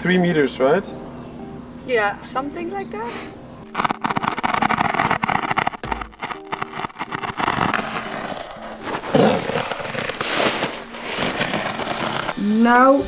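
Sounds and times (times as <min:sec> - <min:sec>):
plastic tarp rustling: 0:03.7 - 0:12.4.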